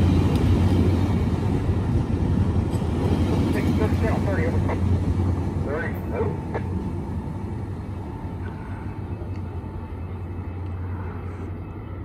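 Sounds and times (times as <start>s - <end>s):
diesel locomotive drone: 0.0s - 12.0s
train rolling rumble: 0.0s - 12.0s.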